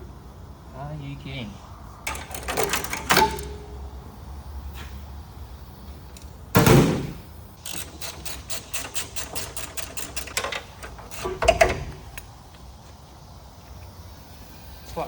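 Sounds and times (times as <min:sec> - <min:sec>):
rapid even clicks: 0:02.1 - 0:03.5, 0:07.6 - 0:12.3.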